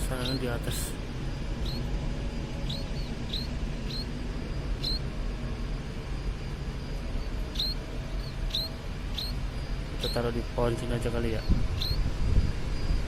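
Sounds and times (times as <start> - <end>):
baby bird cheeping: 0.0 - 5.2, 6.3 - 13.0
steady low rumble: 0.0 - 13.0.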